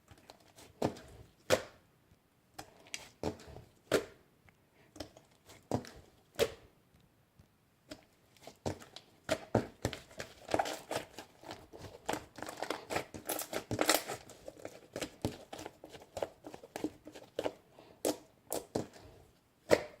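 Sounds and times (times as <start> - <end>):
crinkling and rustling: 0.0 - 1.4, 7.0 - 19.4.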